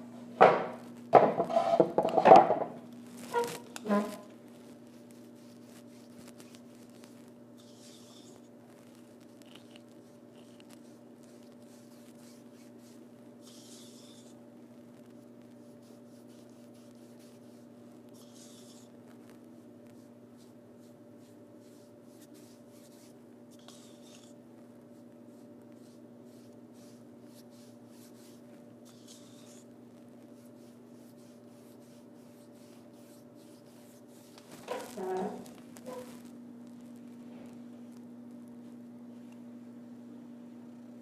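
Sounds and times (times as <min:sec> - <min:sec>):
electrical hum: 0:00.0 - 0:41.0
paintbrush strokes scratching: 0:03.2 - 0:14.4, 0:15.6 - 0:18.9, 0:19.5 - 0:24.4, 0:25.3 - 0:36.3.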